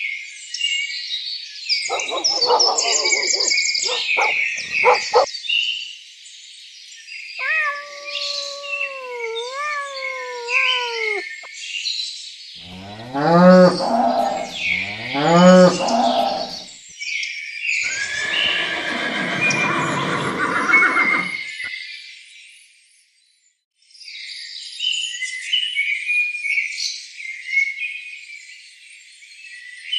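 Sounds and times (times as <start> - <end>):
cow mooing: 1.9 - 5.3, 12.7 - 16.6
high bird chirping: 1.9 - 5.3, 7.4 - 11.5, 12.7 - 16.6
long wavering animal call: 1.9 - 5.3, 7.4 - 11.5, 12.7 - 16.6.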